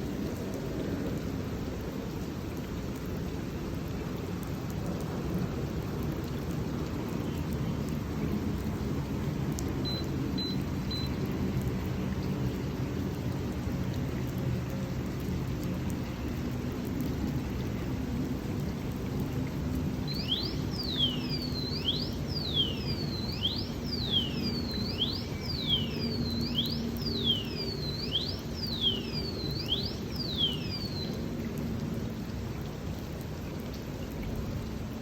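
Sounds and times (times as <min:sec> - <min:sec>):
steady rain: 0:00.0 - 0:35.0
bird whistling and chirping: 0:20.1 - 0:31.2.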